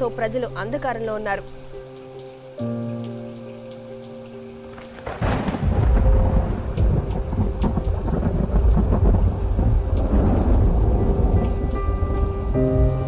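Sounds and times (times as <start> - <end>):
heavy rain patter: 0.0 - 13.0
thunder rumbling: 4.7 - 13.0.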